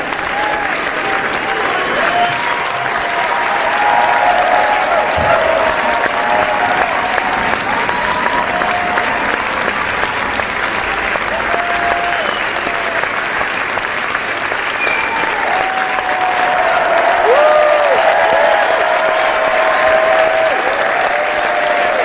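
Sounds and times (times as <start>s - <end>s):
voices calling out: 0.0s - 13.1s
crowd applauding: 0.0s - 22.0s.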